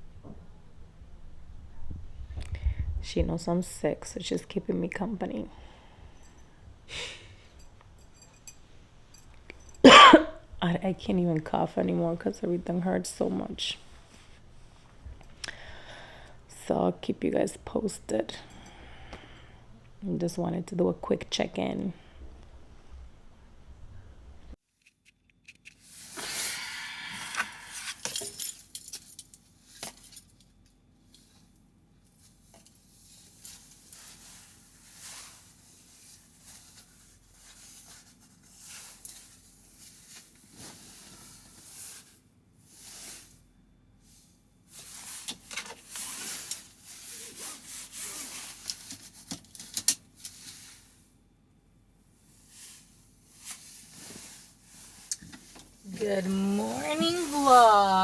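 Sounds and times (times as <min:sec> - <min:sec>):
rustling and scraping handling noises: 0:03.2 - 0:10.2, 0:27.1 - 0:51.2, 0:52.1 - 0:58.0.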